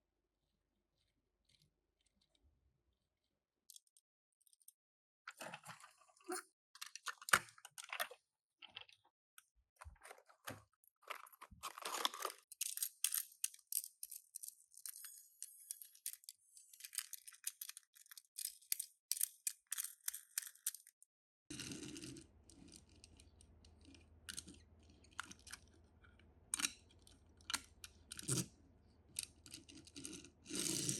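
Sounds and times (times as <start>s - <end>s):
packaging clicks and rustles: 9.9s - 15.1s.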